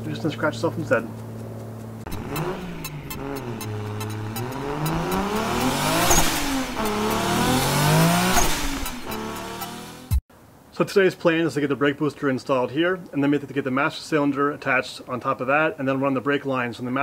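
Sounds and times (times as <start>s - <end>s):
car engine revving: 1.4s - 10.2s.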